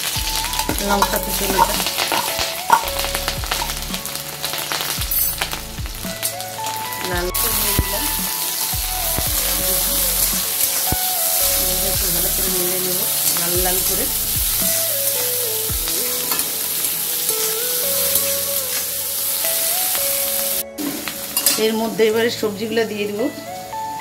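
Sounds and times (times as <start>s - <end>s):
vegetables sizzling in hot oil: 0.0s - 23.8s
steel spatula scraping a wok: 0.4s - 5.7s.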